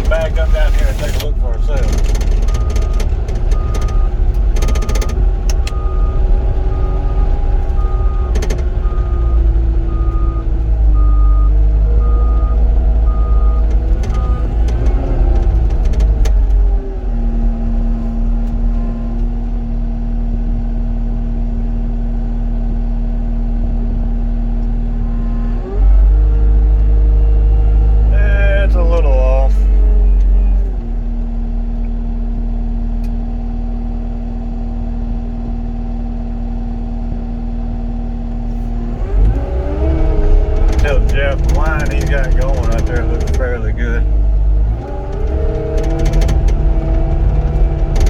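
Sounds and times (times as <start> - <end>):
diesel engine running: 0.0 - 48.0
backup alarm beeping: 1.4 - 14.6.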